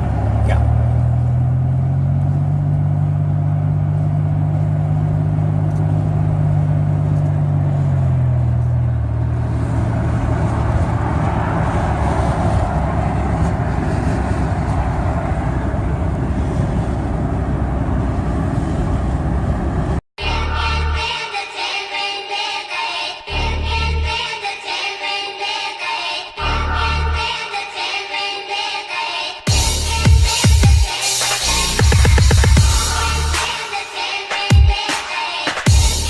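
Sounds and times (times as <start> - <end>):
road and tyre noise: 0.0 - 21.0, 29.5 - 36.0
vehicle engine hum: 0.0 - 21.1, 26.4 - 27.3, 29.5 - 34.6, 35.6 - 36.0.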